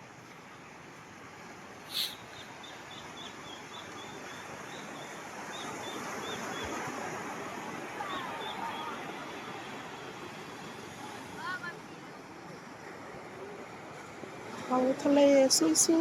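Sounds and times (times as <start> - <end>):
short high bird chirps: 1.9 - 2.5
sea surf rushing: 1.9 - 2.6
bird calling: 1.9 - 4.1.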